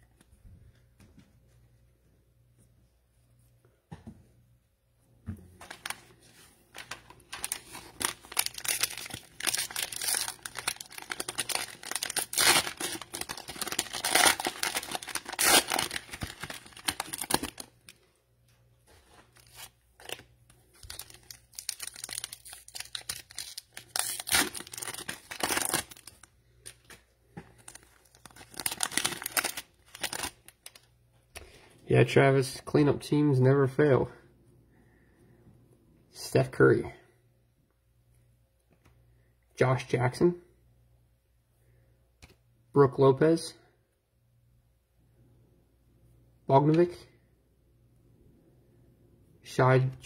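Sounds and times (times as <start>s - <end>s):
cellophane wrappers crinkling: 5.6s - 18.0s, 19.0s - 30.9s.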